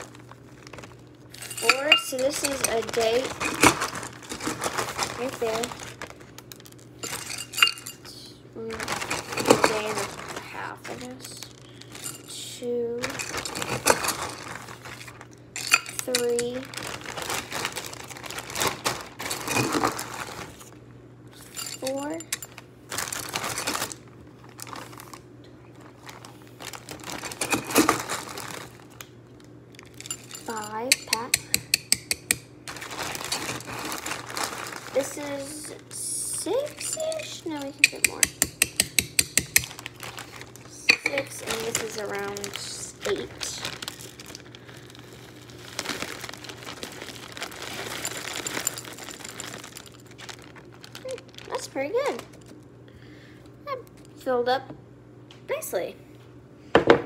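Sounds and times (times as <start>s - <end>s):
plastic bag crinkling: 0.0s - 31.4s, 32.6s - 38.2s, 39.6s - 52.6s
dry kibble rattling into container: 0.1s - 7.9s, 8.7s - 12.4s, 13.0s - 20.6s, 29.7s - 31.3s, 32.7s - 35.6s, 39.6s - 52.4s.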